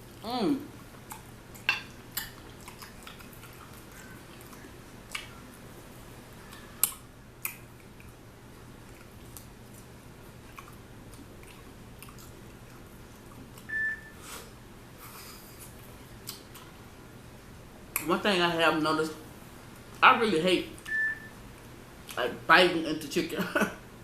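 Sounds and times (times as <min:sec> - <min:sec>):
person chewing chicken wings: 0:01.0 - 0:05.5, 0:08.8 - 0:13.7.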